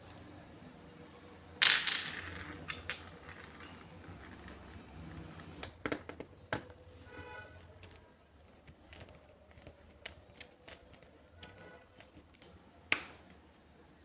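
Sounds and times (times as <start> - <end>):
hard objects clicking and knocking: 1.6 - 6.8, 7.8 - 13.5
short squeak or scrape: 4.9 - 5.7.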